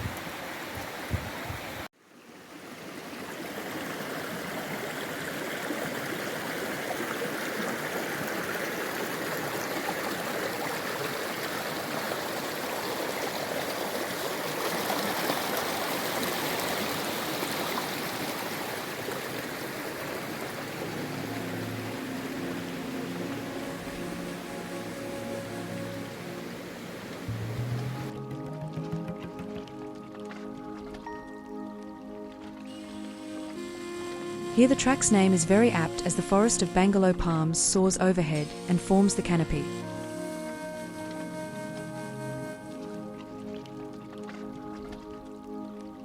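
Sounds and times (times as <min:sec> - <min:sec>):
creek running over rocks: 0:00.0 - 0:46.0
soft music: 0:20.5 - 0:46.0.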